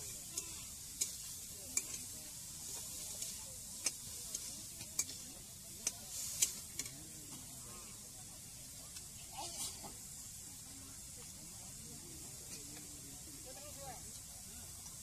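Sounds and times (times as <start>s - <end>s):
metal spatula stirring: 0.0s - 7.5s
pork sizzling in pan: 0.0s - 15.0s.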